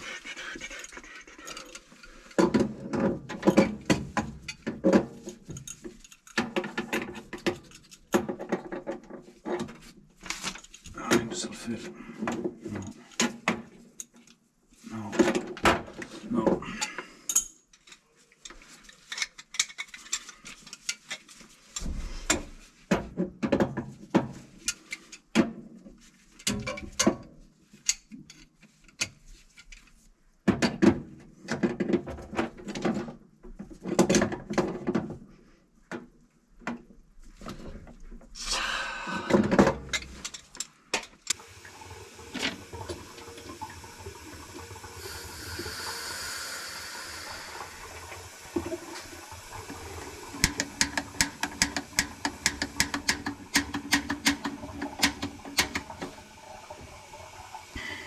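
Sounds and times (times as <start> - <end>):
running water rushing: 41.3 - 58.0.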